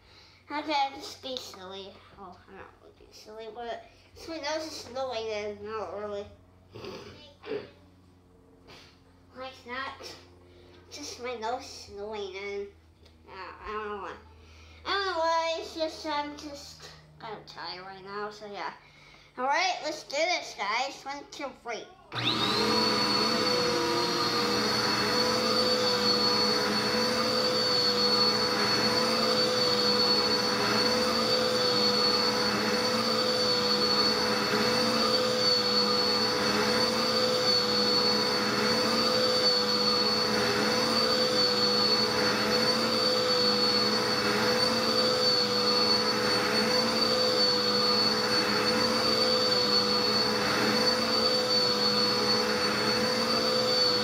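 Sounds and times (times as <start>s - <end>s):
vacuum cleaner whining on carpet: 22.1s - 54.0s.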